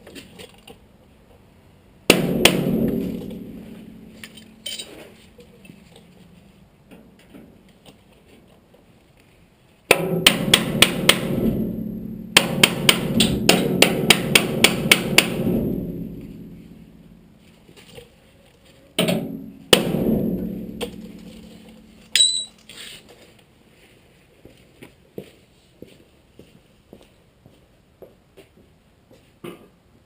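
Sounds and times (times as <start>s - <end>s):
hammer striking sheet steel: 2.1s - 5.1s, 9.9s - 17.2s, 19.0s - 22.6s
metal ringing: 2.1s - 5.2s, 19.0s - 22.7s.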